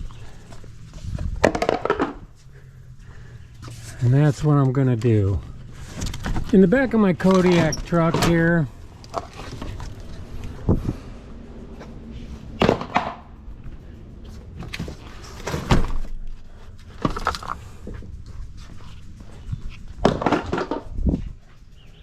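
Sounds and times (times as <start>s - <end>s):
objects thunking and knocking: 0.0s - 4.0s, 5.4s - 6.6s, 7.2s - 11.0s, 11.7s - 13.3s, 14.2s - 18.2s, 19.4s - 21.4s.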